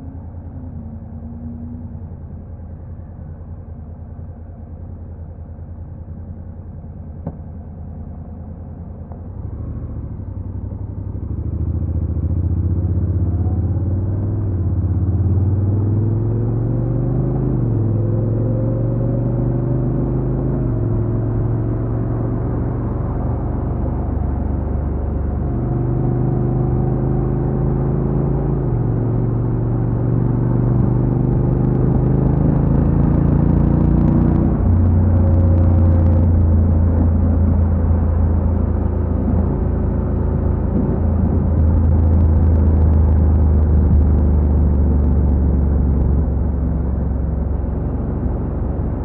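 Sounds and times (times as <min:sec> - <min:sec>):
motorcycle engine idling and accelerating: 0:00.0 - 0:49.0.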